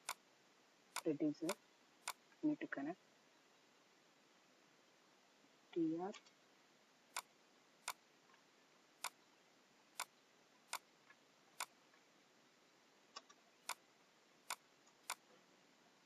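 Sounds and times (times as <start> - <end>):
computer mouse clicking: 0.0 - 0.2, 0.9 - 2.2, 7.1 - 8.4, 9.0 - 9.2, 10.0 - 11.8, 13.1 - 13.8, 14.4 - 15.3
faint room hiss: 0.0 - 16.0.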